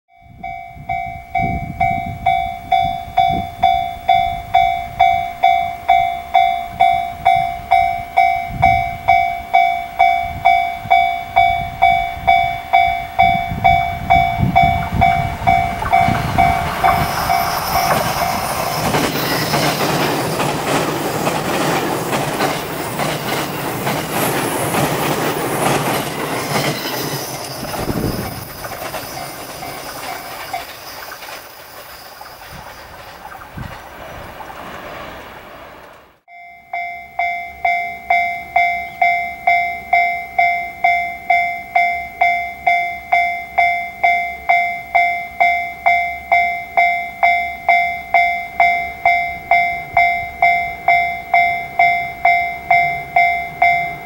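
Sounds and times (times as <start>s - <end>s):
level crossing bell ringing: 0.1s - 20.8s, 26.0s - 32.6s, 36.3s - 54.0s
train wheels rushing on rails: 0.9s - 36.3s.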